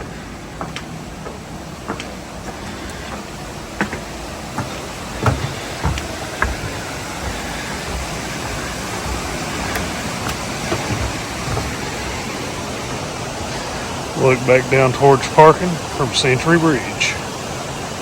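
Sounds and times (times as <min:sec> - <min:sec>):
footsteps on stone: 0:00.0 - 0:13.7
water rushing: 0:00.0 - 0:18.0.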